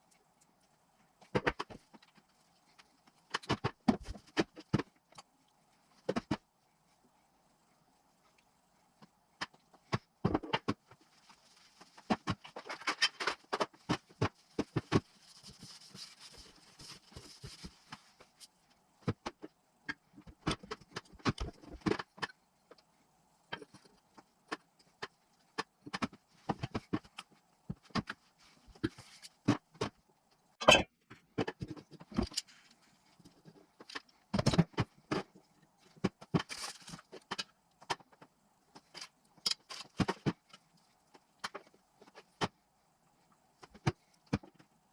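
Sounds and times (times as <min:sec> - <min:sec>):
soft hiss: 0:05.0 - 0:10.0.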